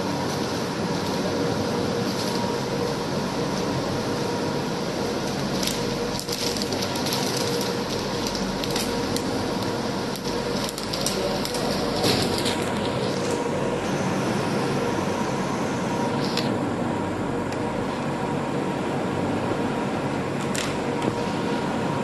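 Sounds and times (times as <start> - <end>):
vacuum pump humming: 0.0 - 22.0
crackling and snapping: 5.2 - 13.4.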